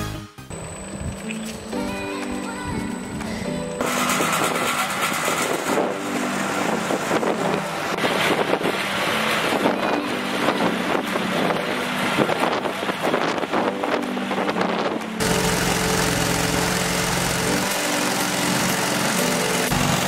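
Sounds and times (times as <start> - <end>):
engine running: 0.3 - 2.3, 2.9 - 20.0
wind buffeting microphone: 4.0 - 15.2.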